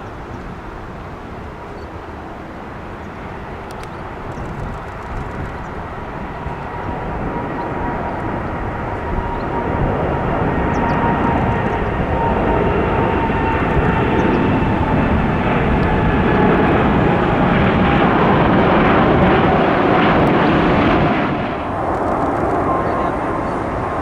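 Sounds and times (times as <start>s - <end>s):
jet engine roar with whine: 0.0s - 24.0s.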